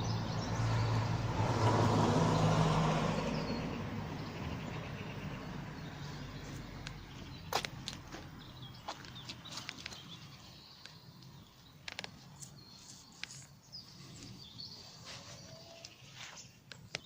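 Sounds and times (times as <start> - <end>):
birds chirping and warbling: 0.0 - 1.6, 2.2 - 17.0.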